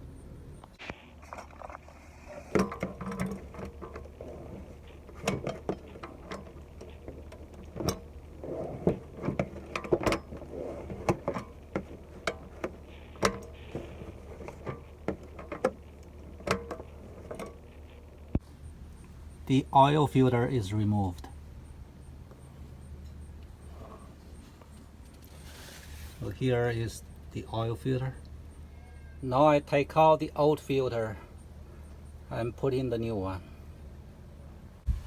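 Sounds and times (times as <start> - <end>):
steady low hum: 0.0 - 35.0
handling rustle: 22.2 - 26.4.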